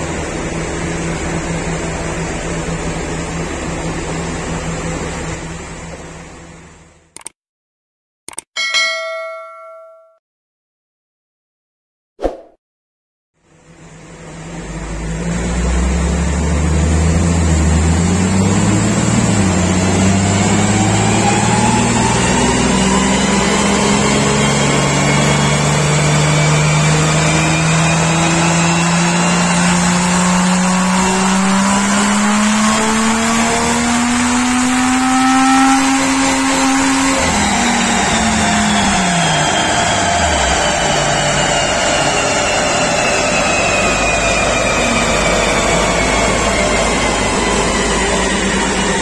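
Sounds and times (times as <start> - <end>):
engine revving under load: 13.6 - 49.0
high whine rising: 13.7 - 49.0.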